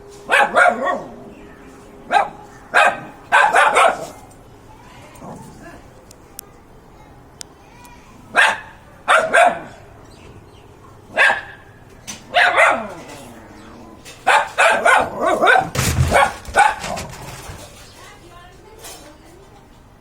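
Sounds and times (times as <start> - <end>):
dog barking: 0.3 - 1.2, 2.1 - 4.3, 8.3 - 9.9, 11.1 - 11.7, 12.3 - 13.1, 14.2 - 17.2.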